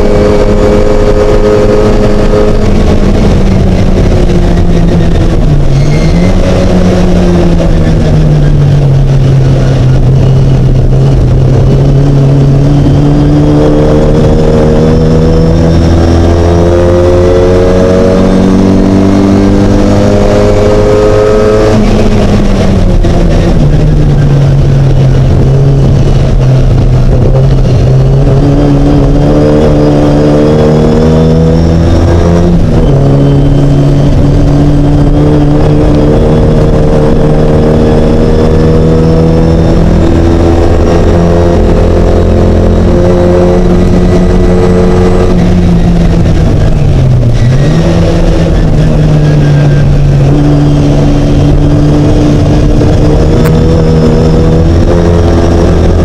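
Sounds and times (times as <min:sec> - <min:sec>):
racing car engine revving: 0:00.0 - 0:56.0.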